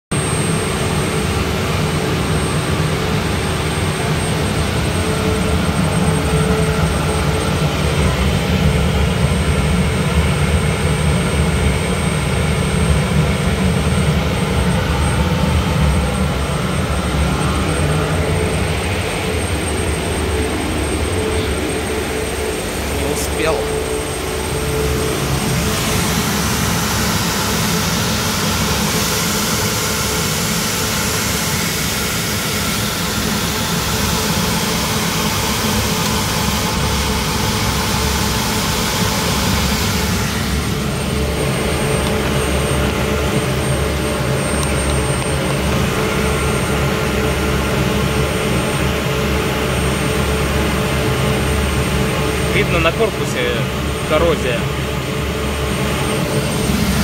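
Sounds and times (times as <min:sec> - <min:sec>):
low hum: 0:00.1 - 0:57.0
burner roaring: 0:55.5 - 0:57.0.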